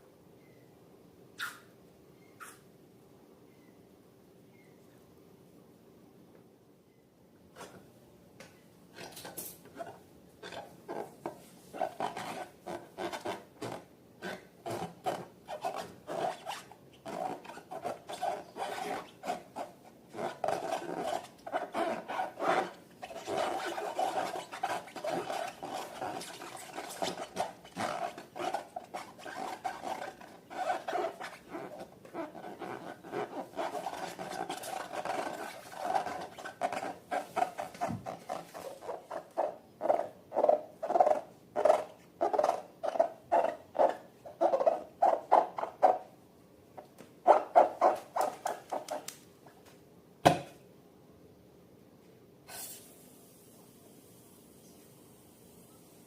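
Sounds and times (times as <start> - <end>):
sticky slime rubbing and clicking: 47.9 - 49.2.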